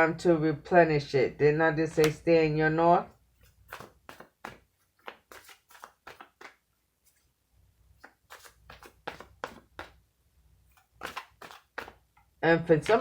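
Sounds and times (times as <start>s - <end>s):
cards being shuffled: 3.4s - 7.3s, 8.0s - 10.0s, 10.7s - 12.0s, 12.8s - 13.0s.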